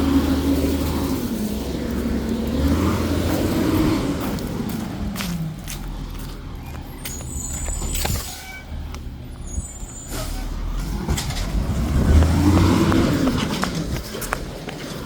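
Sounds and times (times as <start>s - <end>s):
garbage truck engine revving: 0.0s - 15.0s
high squeal: 6.6s - 11.4s.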